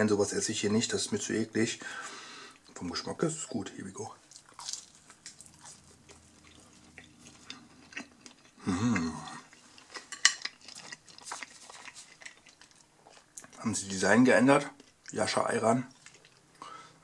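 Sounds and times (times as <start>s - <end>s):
person chewing: 4.2s - 13.7s, 14.7s - 15.2s, 15.9s - 17.0s
person humming: 8.6s - 9.4s
crust clicking on ceramic plate: 9.9s - 12.8s.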